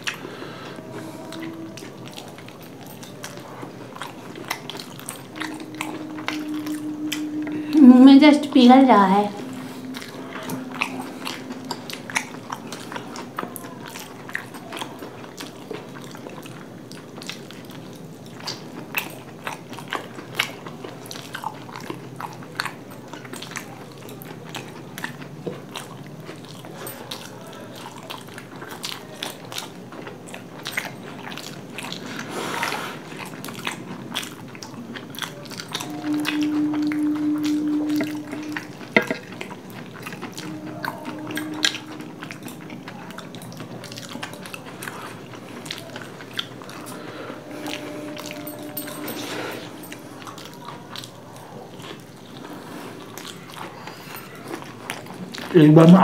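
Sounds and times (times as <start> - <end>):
people chewing and biting: 0.0 - 7.9, 8.9 - 56.0
steady held tone: 0.0 - 13.8, 35.7 - 43.8, 45.9 - 50.9.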